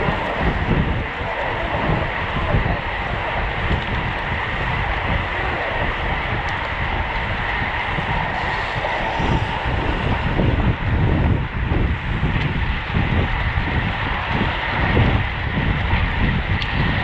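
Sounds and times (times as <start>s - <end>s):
steady high whine: 0.0s - 15.5s
wind buffeting microphone: 0.0s - 17.0s.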